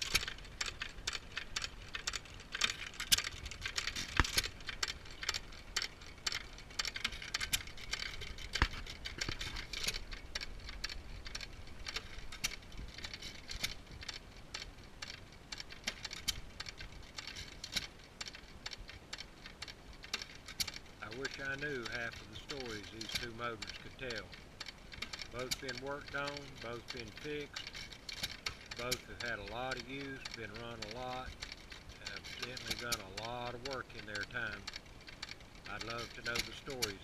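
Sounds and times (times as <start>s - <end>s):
hit-and-miss engines running: 28.5s - 34.6s.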